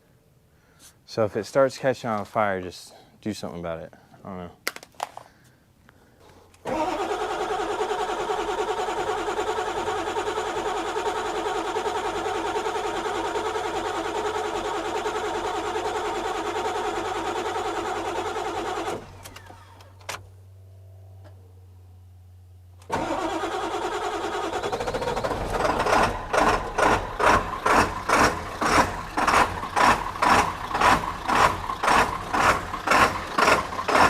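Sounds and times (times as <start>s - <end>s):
diesel engine cranking: 6.6s - 20.3s, 22.8s - 34.0s.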